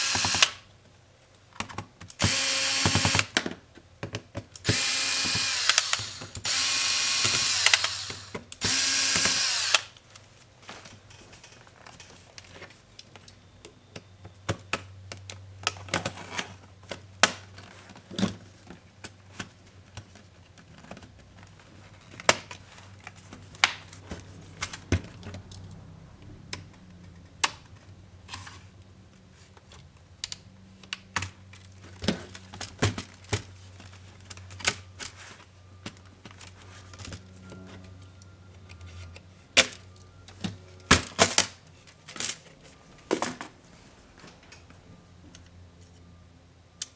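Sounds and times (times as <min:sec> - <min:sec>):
small tools and plastic parts clicking: 0:00.0 - 0:00.6, 0:04.6 - 0:10.2.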